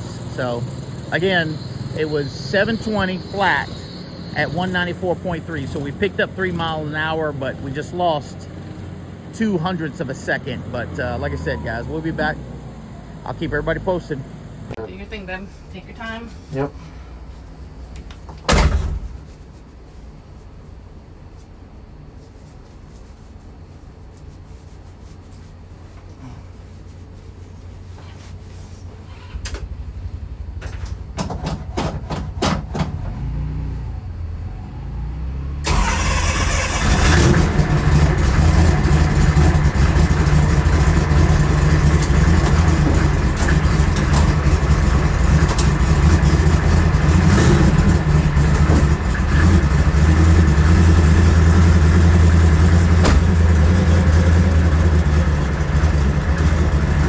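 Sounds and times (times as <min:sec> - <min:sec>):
car engine starting and idling: 0:00.0 - 0:14.8, 0:32.5 - 0:57.0.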